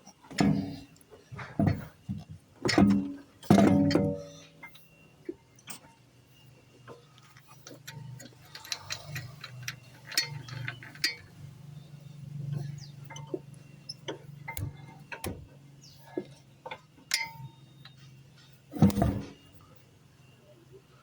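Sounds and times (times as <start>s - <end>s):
metal lug bolts clinking: 2.6s - 4.8s, 6.9s - 19.6s.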